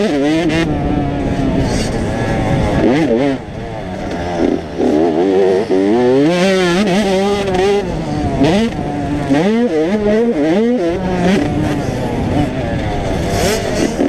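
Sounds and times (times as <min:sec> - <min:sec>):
two-stroke motocross bikes revving: 0:00.0 - 0:14.0.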